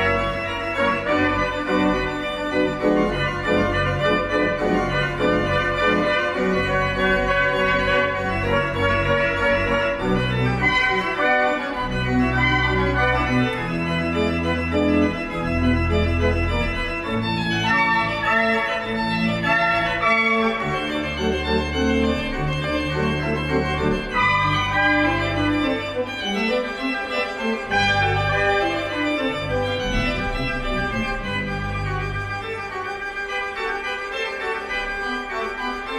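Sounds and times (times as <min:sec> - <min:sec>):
organ playing slow chords: 0:00.0 - 0:35.9.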